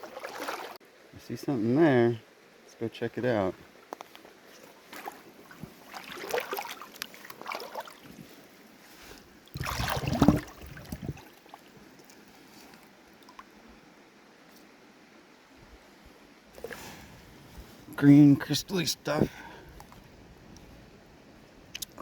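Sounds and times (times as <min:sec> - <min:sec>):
wading through shallow water: 0:00.0 - 0:00.8, 0:03.7 - 0:13.6
deep rumbling water surge: 0:09.5 - 0:11.3.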